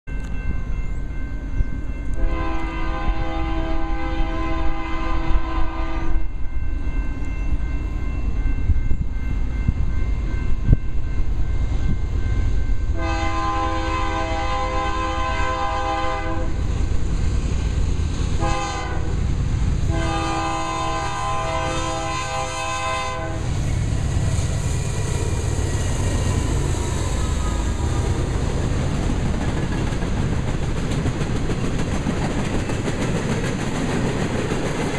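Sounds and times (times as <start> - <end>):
locomotive air horn blasts: 2.1 - 6.3, 12.9 - 16.6, 18.4 - 19.2, 19.9 - 23.6
train wheels clattering on rails: 23.4 - 34.9.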